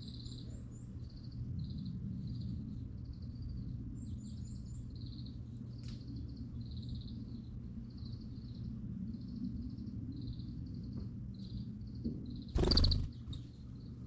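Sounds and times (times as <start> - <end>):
steady low hum: 12.6 - 14.0.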